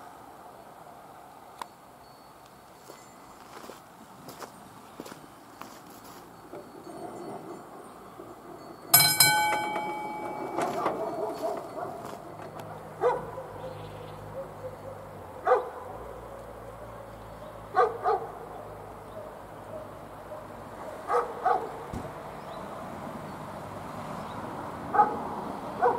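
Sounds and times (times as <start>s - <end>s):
dog barking: 10.7s - 12.1s, 12.7s - 16.0s, 17.7s - 18.5s, 19.2s - 21.9s, 24.9s - 25.2s.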